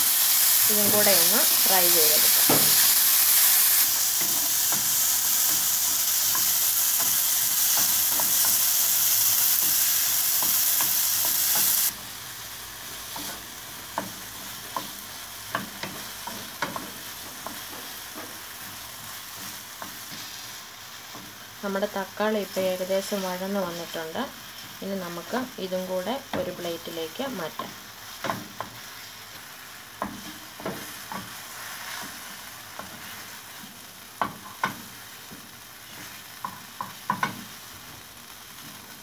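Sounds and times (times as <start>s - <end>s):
tomato sizzling in oil: 0.0s - 39.0s
spatula tapping a pan: 4.2s - 11.8s, 13.1s - 20.3s, 27.5s - 38.0s.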